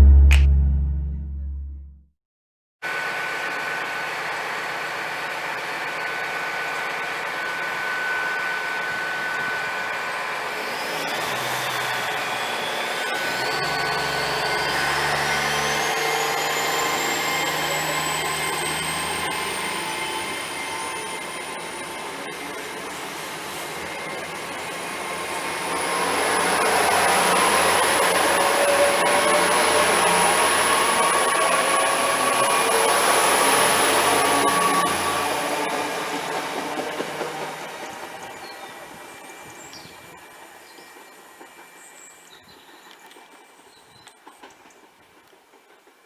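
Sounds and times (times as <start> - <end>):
rising traction whine: 0.0 - 1.9
train diesel engines running: 12.5 - 46.0.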